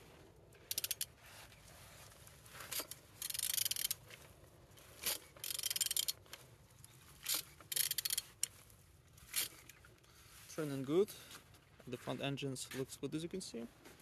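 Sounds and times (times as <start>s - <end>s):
ratchet wrench clicking: 0.6s - 1.1s, 2.7s - 4.0s, 5.0s - 6.3s, 7.2s - 8.5s.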